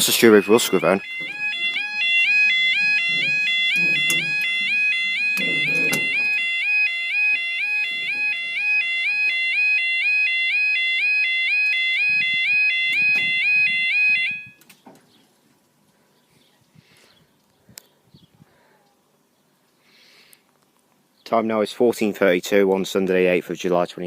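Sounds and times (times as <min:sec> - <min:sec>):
two-tone level crossing alarm: 0:00.0 - 0:14.6.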